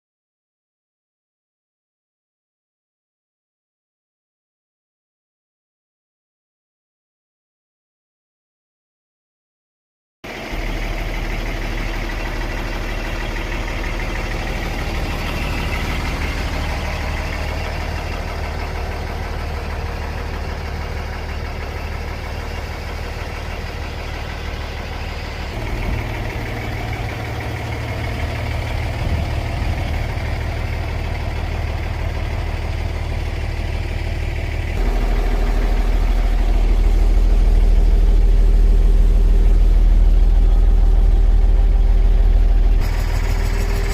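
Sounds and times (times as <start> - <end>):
diesel truck engine idling: 10.3 - 43.9.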